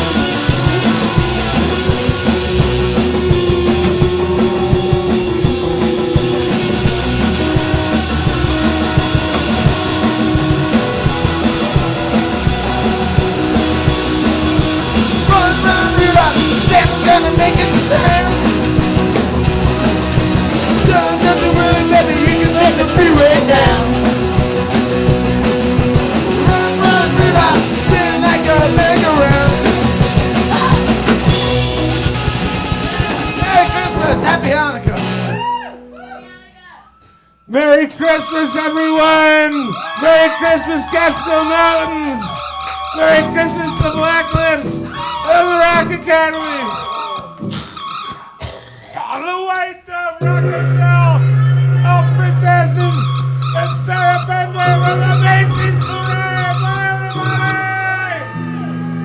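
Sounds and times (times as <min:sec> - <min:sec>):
punk rock band playing: 0:00.0 - 0:36.1, 0:37.5 - 0:48.0, 0:50.2 - 0:59.0
person singing: 0:15.0 - 0:19.0, 0:20.6 - 0:24.3, 0:26.1 - 0:31.2.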